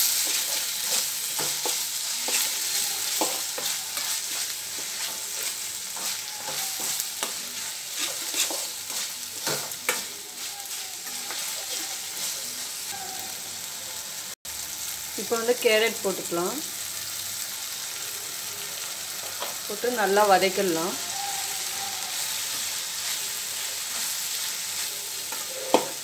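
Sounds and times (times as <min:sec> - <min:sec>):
spatula clicking and scraping pan: 0:00.0 - 0:12.6, 0:22.5 - 0:26.0
food sizzling in hot oil: 0:00.0 - 0:26.0.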